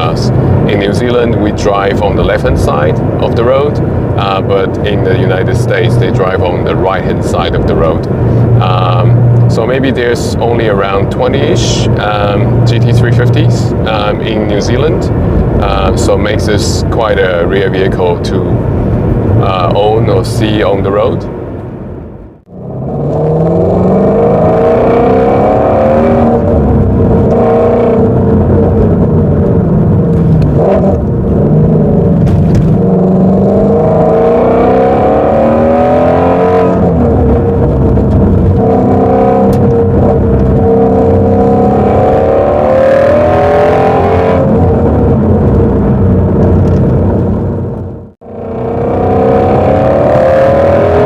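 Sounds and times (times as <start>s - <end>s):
car engine revving through gears: 22.4s - 51.0s.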